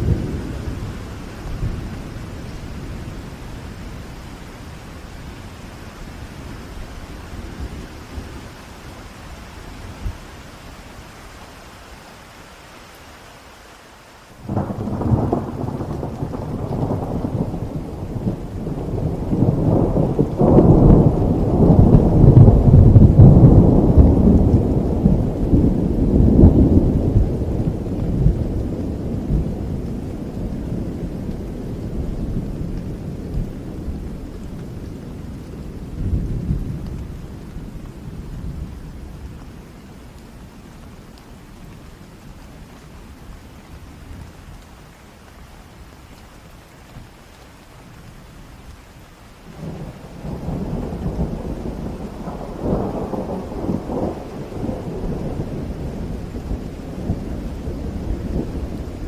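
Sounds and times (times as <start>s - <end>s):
steady rain: 0.0s - 59.0s
deep rolling thunder: 14.5s - 39.0s, 49.6s - 59.0s.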